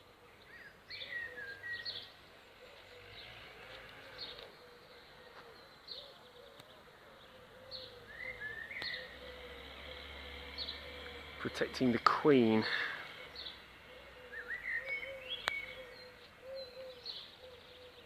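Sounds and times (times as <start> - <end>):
small birds chirping: 0.0 - 18.0
bird rising calls: 0.5 - 18.0
honeybees buzzing: 7.8 - 14.8.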